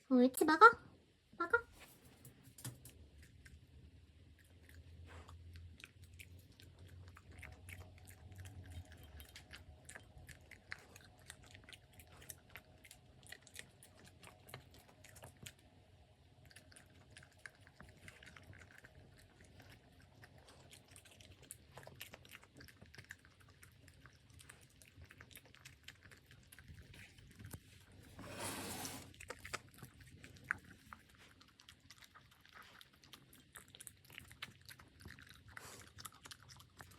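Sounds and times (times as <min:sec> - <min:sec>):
puppy chewing and crunching food: 0:01.8 - 0:36.9.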